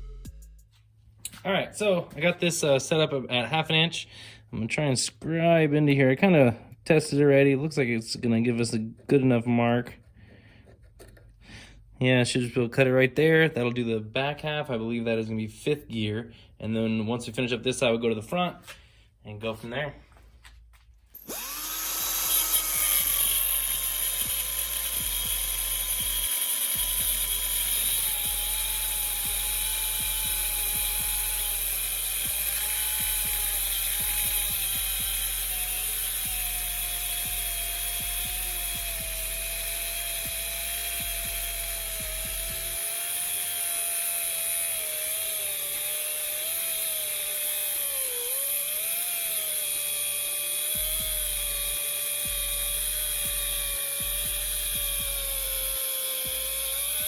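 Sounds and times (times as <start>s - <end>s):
grinder cutting steel: 21.1s - 57.0s.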